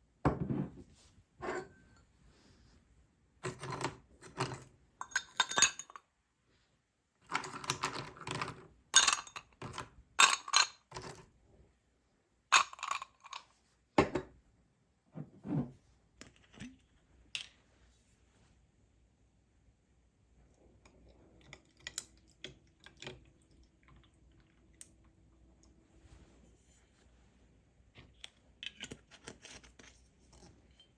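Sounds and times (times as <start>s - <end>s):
dishes clinking and clattering: 1.4s - 2.1s, 3.4s - 6.0s, 7.4s - 11.2s.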